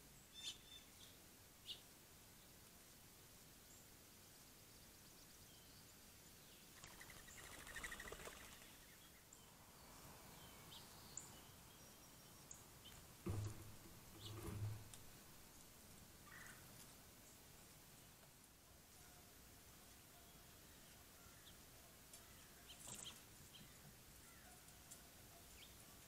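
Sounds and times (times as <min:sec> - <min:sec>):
songbirds chirping: 0:00.0 - 0:26.0
dull low knocks: 0:13.2 - 0:15.3.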